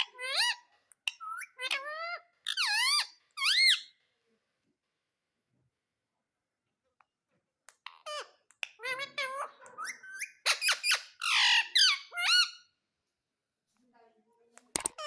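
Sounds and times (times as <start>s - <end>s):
parrot rasping squawk: 0.0s - 3.9s, 7.9s - 12.7s
parrot squeaky calls: 0.0s - 4.0s, 7.8s - 12.8s.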